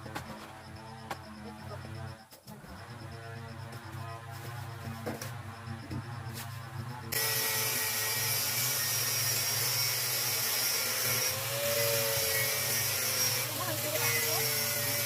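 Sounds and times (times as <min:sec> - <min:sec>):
power tool whirring: 0:06.8 - 0:15.0.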